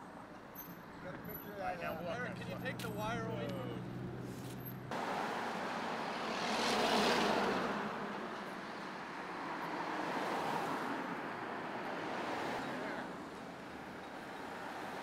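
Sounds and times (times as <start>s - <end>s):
road traffic noise: 0.0s - 15.0s
vehicle passing: 1.9s - 13.2s.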